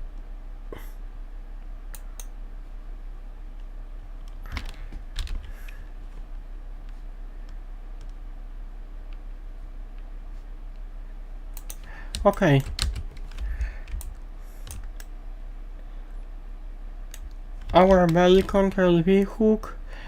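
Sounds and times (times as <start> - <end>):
low electrical hum: 0.0 - 20.0
keyboard keys clicking: 4.3 - 5.8, 11.6 - 15.1, 17.1 - 19.3.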